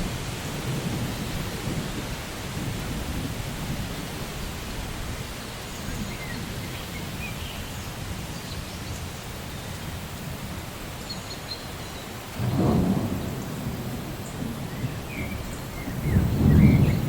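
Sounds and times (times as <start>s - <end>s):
thunder rumbling: 0.0s - 4.6s, 12.4s - 17.0s
steady rain: 0.0s - 17.0s.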